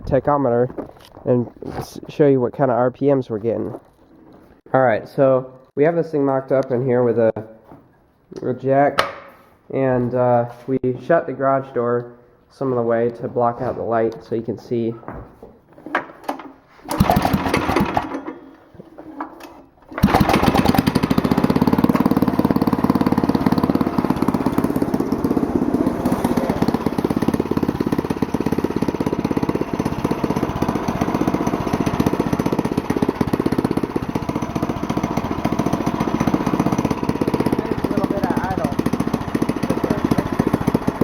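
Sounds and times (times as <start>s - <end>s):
go-kart engine starting: 16.8s - 18.6s, 19.8s - 41.0s.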